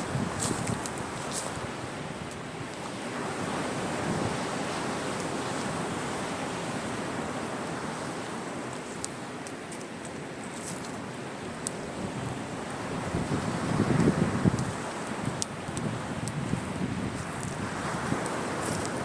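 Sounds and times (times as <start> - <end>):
sea waves washing onto shore: 0.0 - 19.0
wood fire crackles: 8.7 - 11.8, 14.4 - 19.0.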